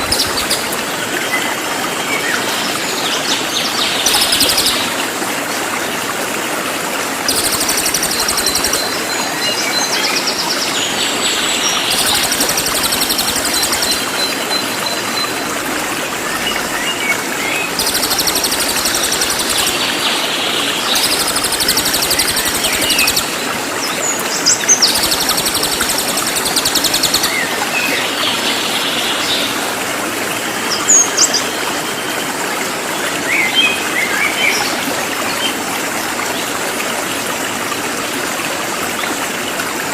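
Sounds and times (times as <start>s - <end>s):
water flowing: 0.0s - 39.9s
songbird singing: 16.7s - 23.4s.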